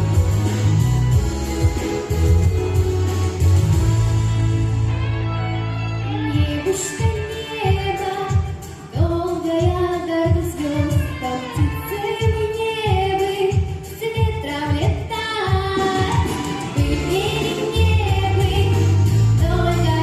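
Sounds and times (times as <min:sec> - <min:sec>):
steady beat: 0:00.0 - 0:04.7
person singing pop song: 0:05.8 - 0:20.0.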